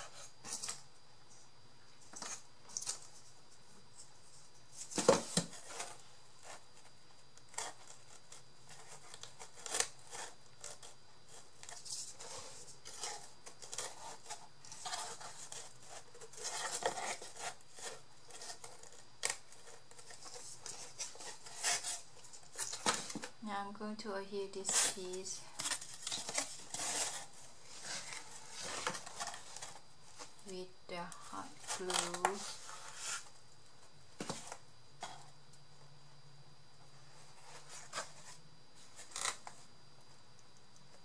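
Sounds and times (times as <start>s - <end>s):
paper rustling: 24.6s - 30.5s.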